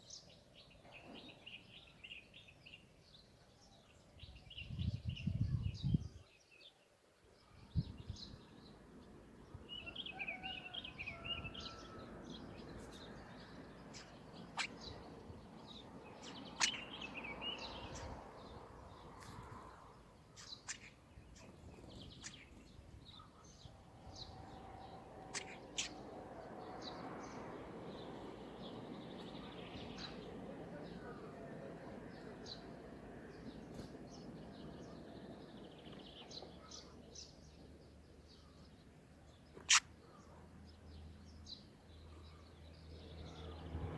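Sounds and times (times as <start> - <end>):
birds chirping and twittering: 0.0 - 43.9.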